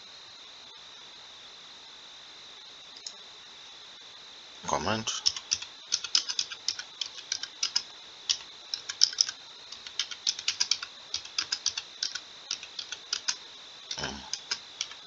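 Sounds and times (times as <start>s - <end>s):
computer keyboard typing: 5.2s - 15.0s.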